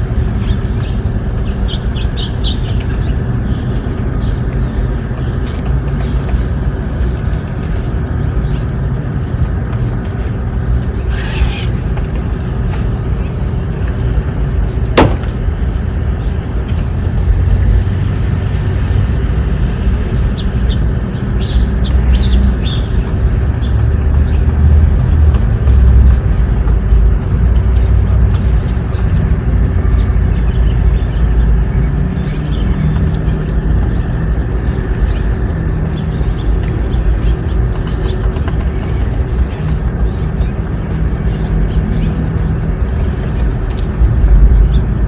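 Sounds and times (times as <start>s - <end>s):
small birds chirping: 0.1s - 9.1s, 9.8s - 16.6s, 18.5s - 45.0s.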